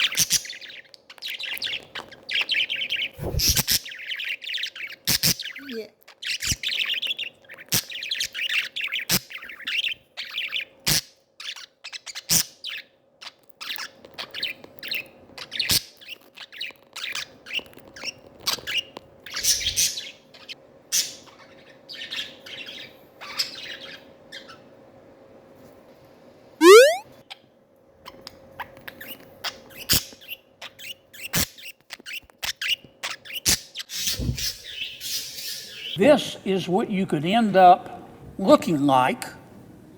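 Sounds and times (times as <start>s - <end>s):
budgerigars chattering and chirping: 0.0s - 24.7s, 32.6s - 36.2s.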